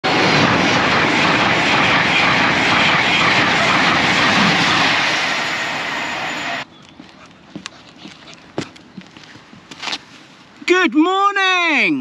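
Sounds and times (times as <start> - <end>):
high-speed train passing: 0.0 - 6.7.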